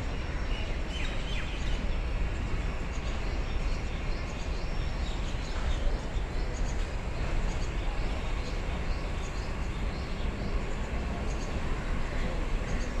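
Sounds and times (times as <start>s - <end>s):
distant train rumbling past: 0.0s - 13.0s.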